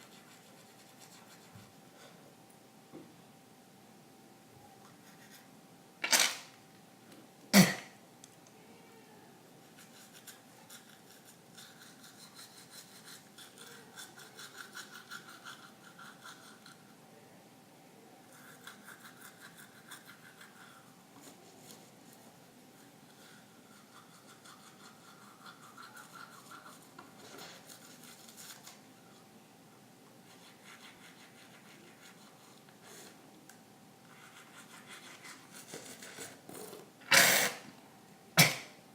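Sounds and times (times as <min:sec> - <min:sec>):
toothbrush scrubbing teeth: 0:00.0 - 0:01.8, 0:09.6 - 0:17.0, 0:18.3 - 0:29.2, 0:30.2 - 0:32.7, 0:34.1 - 0:36.7.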